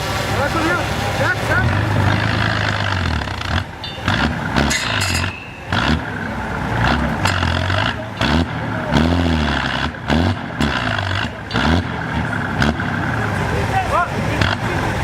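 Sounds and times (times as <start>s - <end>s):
truck engine revving: 0.0s - 15.0s
sharp knocks and clatter: 2.0s - 6.2s, 6.8s - 13.1s.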